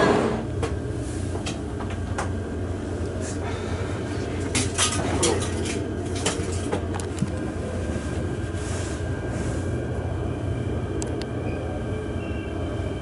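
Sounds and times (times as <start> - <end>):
low hum inside train car: 0.0 - 13.0
faint high whine: 9.2 - 13.0.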